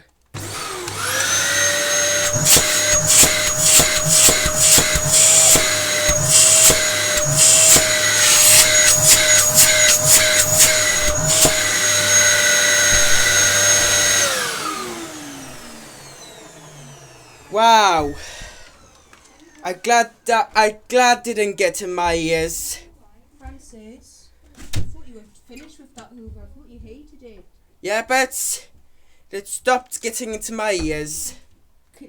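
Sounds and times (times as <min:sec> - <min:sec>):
vacuum cleaner motor whine: 0:00.4 - 0:20.2.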